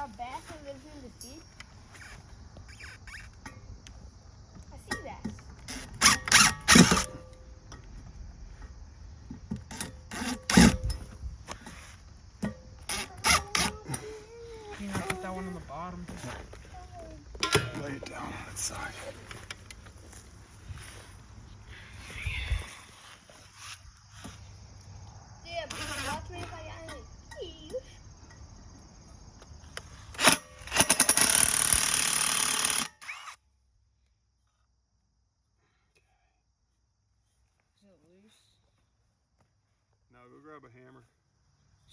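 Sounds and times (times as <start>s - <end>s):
power drill drilling with high whine: 5.7s - 7.1s, 9.8s - 10.8s, 12.9s - 13.8s, 30.2s - 33.4s
parts and tools clattering: 17.4s - 18.2s.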